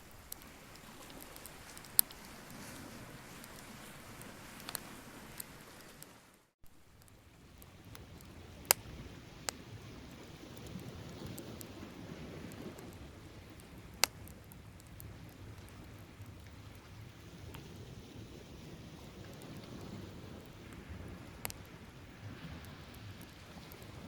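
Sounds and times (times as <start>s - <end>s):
bonfire crackling: 0.0s - 24.0s.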